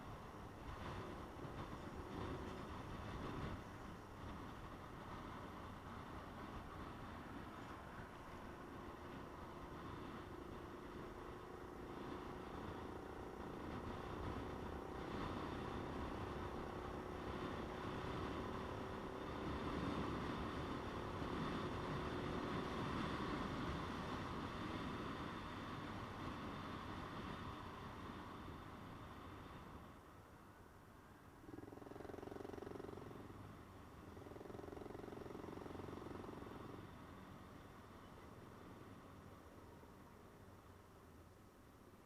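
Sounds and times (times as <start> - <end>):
wind noise: 0.0 - 30.0.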